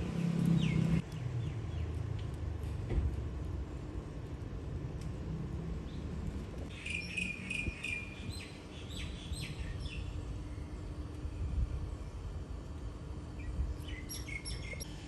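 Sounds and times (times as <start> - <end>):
low outdoor rumble: 0.0 - 15.0
small bird chirping: 13.4 - 14.9.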